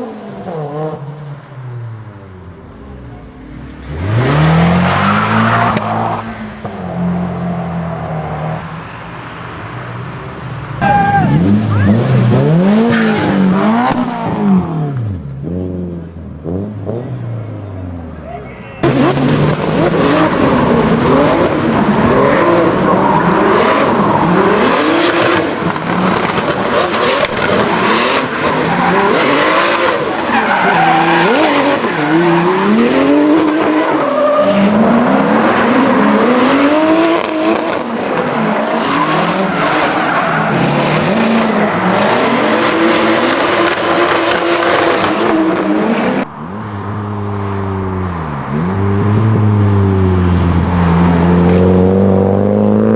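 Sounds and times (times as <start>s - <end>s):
car engine revving: 1.7s - 52.9s
tyres squealing: 26.7s - 34.8s.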